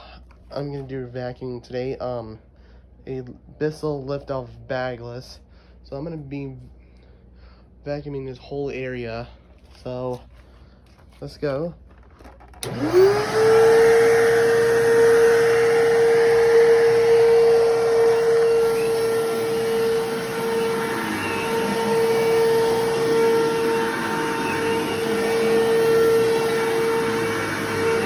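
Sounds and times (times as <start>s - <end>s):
vacuum cleaner running: 12.2s - 28.0s.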